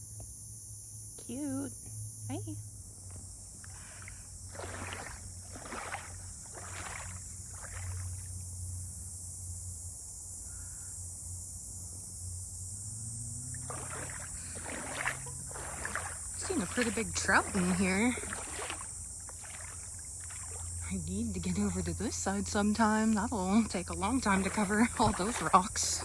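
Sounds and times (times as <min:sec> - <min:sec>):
footsteps sloshing through water: 0:03.0 - 0:08.6, 0:13.3 - 0:26.0.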